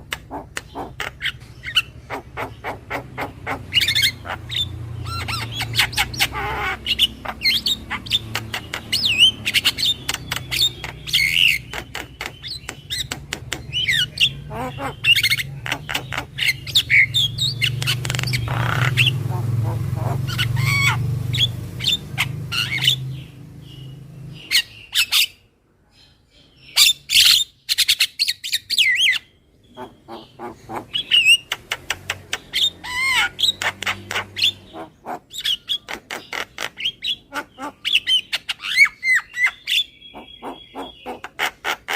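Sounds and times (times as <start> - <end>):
myna chattering and whistling: 0.0 - 23.0, 29.7 - 41.9.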